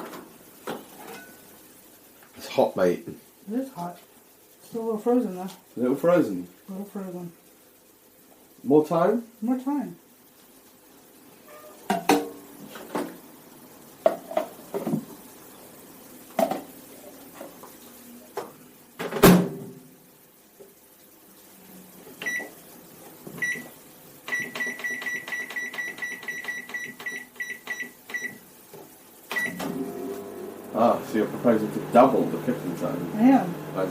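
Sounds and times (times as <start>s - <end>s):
microwave control panel beeps: 22.2s - 22.5s, 23.4s - 23.7s, 24.3s - 28.4s, 29.3s - 29.7s.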